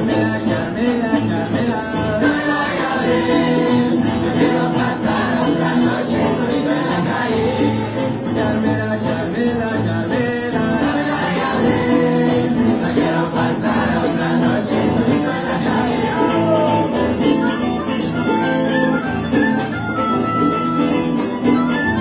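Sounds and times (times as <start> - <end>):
group of voices singing: 0.0 - 19.4.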